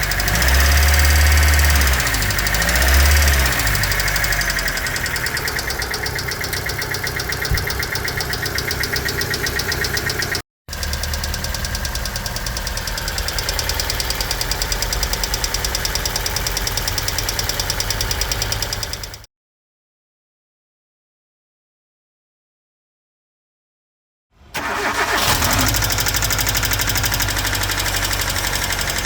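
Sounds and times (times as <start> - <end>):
car engine idling: 0.0 - 19.3, 24.6 - 29.0
fast even lifter ticking: 0.0 - 19.3, 25.8 - 29.0.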